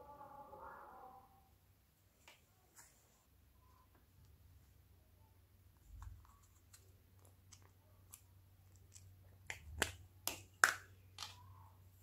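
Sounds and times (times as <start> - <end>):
plastic lid clicks and pops: 9.4 - 11.4.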